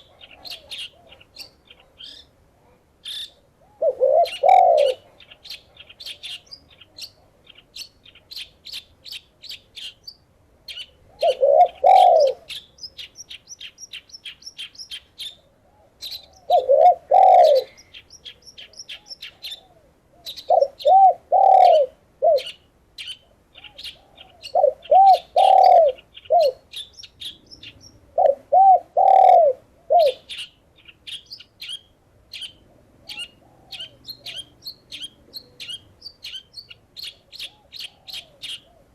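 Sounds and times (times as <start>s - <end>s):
doves cooing: 0.0s - 2.2s, 3.6s - 6.6s, 11.1s - 12.6s, 15.6s - 18.0s, 18.6s - 22.6s, 23.6s - 30.4s, 32.6s - 35.9s, 37.0s - 38.9s
small birds chirping: 0.0s - 38.9s.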